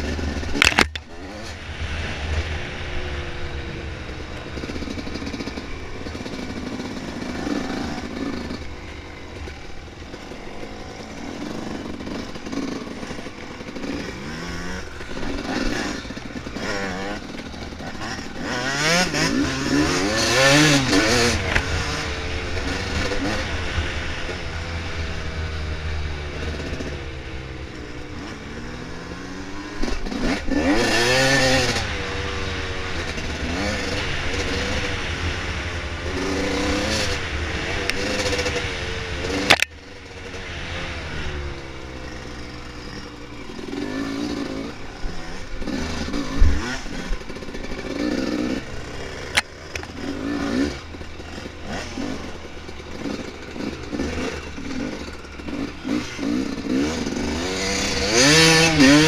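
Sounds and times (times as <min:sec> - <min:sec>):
dirt bike engine revving: 0:00.0 - 0:59.0
sharp crack: 0:00.4 - 0:02.6, 0:39.3 - 0:39.8.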